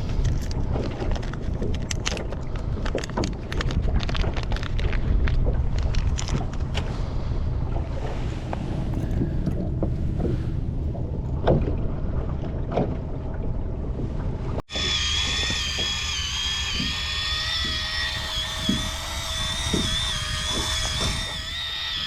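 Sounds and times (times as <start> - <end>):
water noise: 0.0 - 22.0
wind: 0.0 - 22.0
electric fishing reel motor whining: 14.7 - 22.0.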